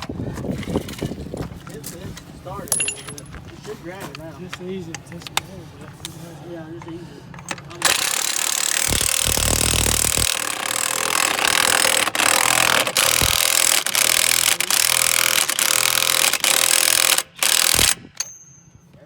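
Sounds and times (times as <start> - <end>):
impact wrench running: 7.8 - 18.4.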